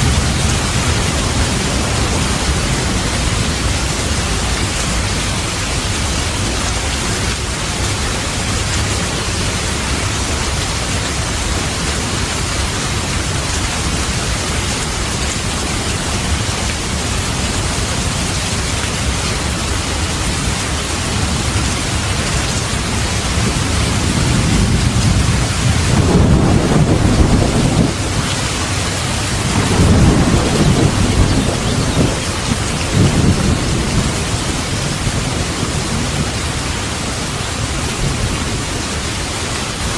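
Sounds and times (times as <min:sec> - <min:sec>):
thunder rumbling: 0:00.0 - 0:07.9, 0:21.1 - 0:39.0
heavy rain: 0:00.0 - 0:39.9.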